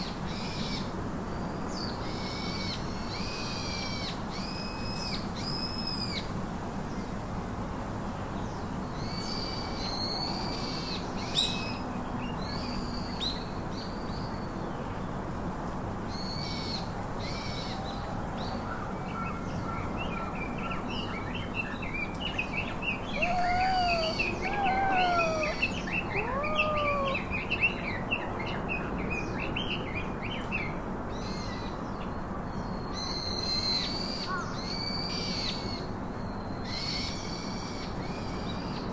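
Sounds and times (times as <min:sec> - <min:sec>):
lower gliding bird calls: 0:22.9 - 0:27.8
high arched bird call: 0:23.1 - 0:27.4.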